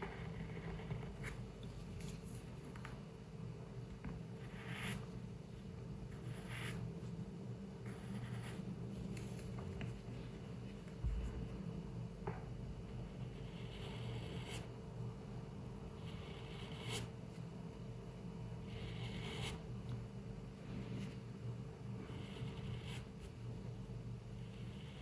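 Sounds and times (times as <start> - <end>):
low room hum: 0.0 - 25.0
pencil scratching on paper: 4.4 - 5.1, 6.1 - 7.1, 7.8 - 9.6, 12.9 - 14.7, 16.0 - 17.2, 18.6 - 19.7, 22.1 - 23.4.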